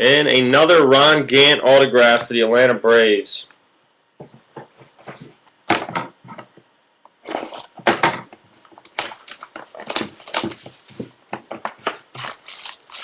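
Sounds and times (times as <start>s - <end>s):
packaging rustling and crinkling: 8.6s - 13.0s.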